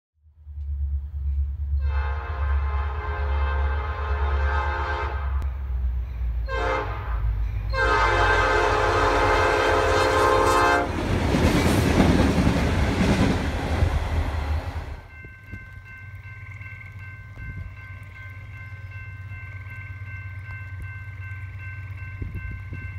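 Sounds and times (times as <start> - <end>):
rumble of rolling train cars: 0.2 - 22.9
locomotive air horn blasts: 1.8 - 5.6, 6.4 - 11.0
locomotive engine and wheel noise: 5.4 - 22.9.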